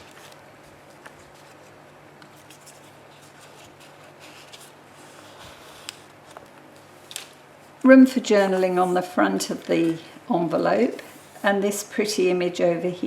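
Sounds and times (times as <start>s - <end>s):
paper rustling: 0.0s - 7.4s.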